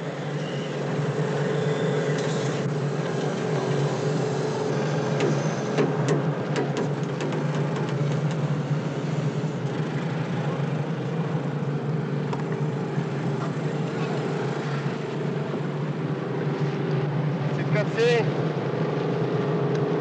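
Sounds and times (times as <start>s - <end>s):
low mechanical hum: 0.0s - 20.0s
sharp clicks and knocks: 5.2s - 8.5s.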